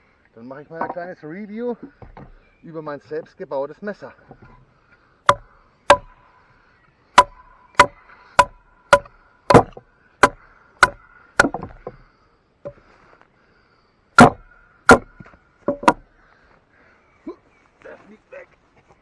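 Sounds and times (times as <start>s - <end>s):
wooden club knocking on knife: 7.2s - 12.0s, 14.2s - 16.0s.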